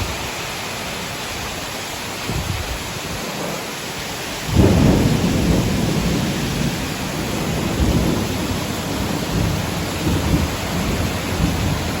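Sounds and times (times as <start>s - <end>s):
heavy rain pouring: 0.0s - 12.0s
rolling thunder rumble: 4.3s - 12.0s.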